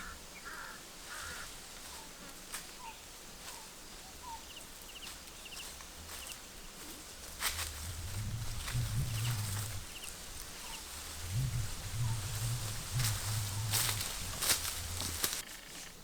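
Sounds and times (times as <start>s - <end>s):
harsh caw-like bird call: 0.0s - 1.5s
faint low hum: 4.0s - 15.4s.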